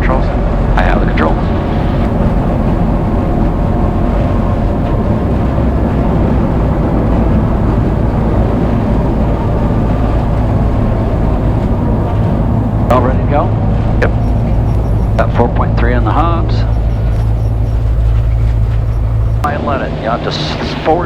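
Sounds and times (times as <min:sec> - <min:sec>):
plane engine and propeller running: 0:00.0 - 0:21.0.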